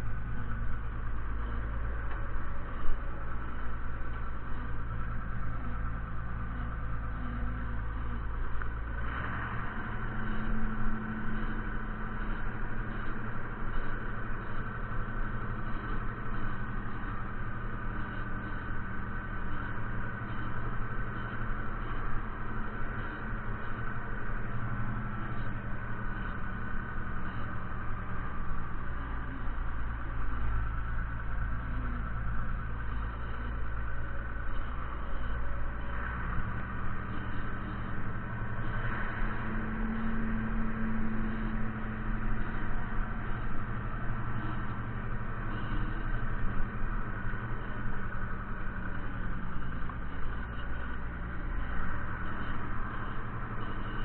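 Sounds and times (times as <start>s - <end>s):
tractor diesel engine droning: 0.0s - 54.0s.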